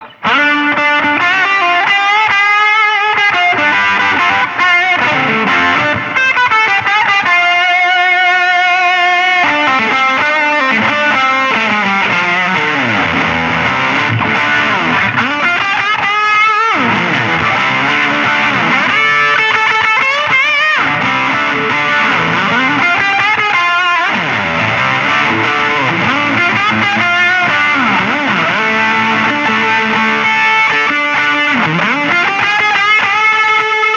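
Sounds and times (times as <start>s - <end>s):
fuzz-distorted electric guitar lead: 0.0s - 33.9s.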